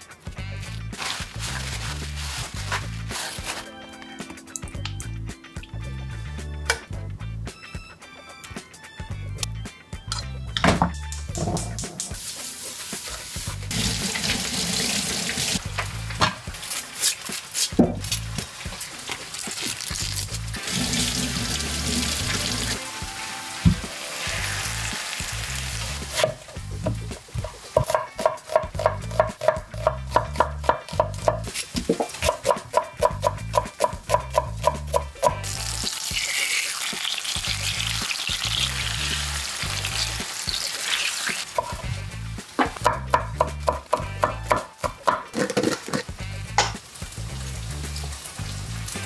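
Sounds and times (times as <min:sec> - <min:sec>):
background music with beat: 0:00.0 - 0:13.7, 0:20.0 - 0:36.3, 0:41.4 - 0:49.0
food sizzling in a pan: 0:12.0 - 0:27.8, 0:35.4 - 0:42.9, 0:45.4 - 0:49.0
utensil tapping in a pan: 0:26.3 - 0:35.4, 0:42.6 - 0:46.8.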